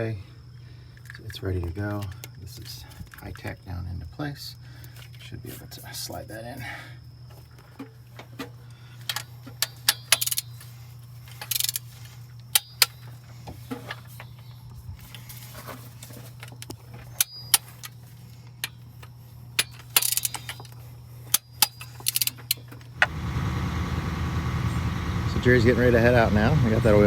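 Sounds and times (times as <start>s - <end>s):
steady low hum: 7.0s - 27.0s
metal tools clinking and knocking: 7.7s - 23.0s.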